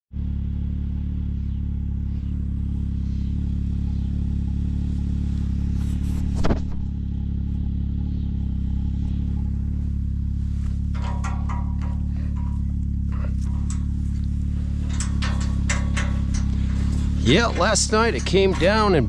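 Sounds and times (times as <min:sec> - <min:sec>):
vehicle engine humming: 0:00.0 - 0:19.0
brief knock: 0:06.1 - 0:07.0.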